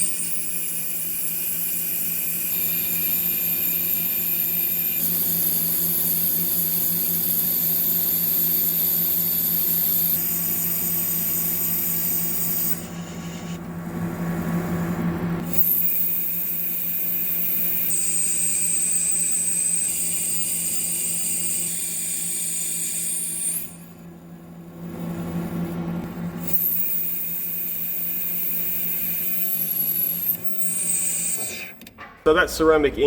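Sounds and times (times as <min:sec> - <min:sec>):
metal lathe cutting with whine: 0:00.0 - 0:13.6, 0:15.5 - 0:24.0, 0:26.4 - 0:31.6.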